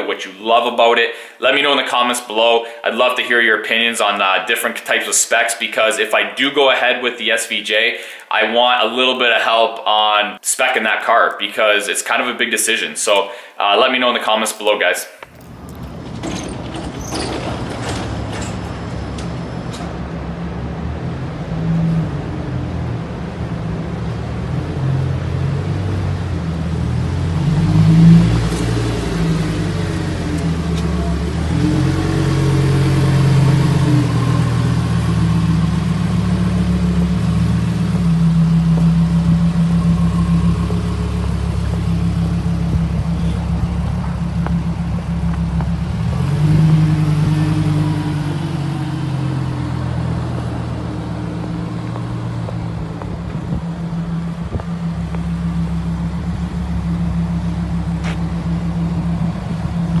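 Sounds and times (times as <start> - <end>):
sports car engine revving: 20.0 - 60.0.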